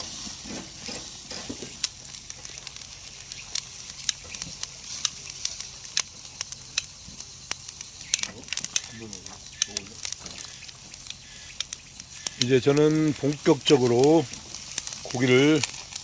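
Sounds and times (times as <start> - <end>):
meat sizzling on a grill: 0.0 - 16.0.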